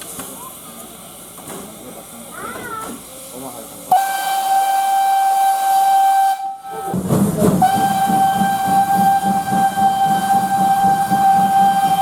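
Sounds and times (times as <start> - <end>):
steam locomotive whistle blasts: 3.9 - 7.0, 7.6 - 12.0
low rhythmic pulsing: 6.6 - 12.0.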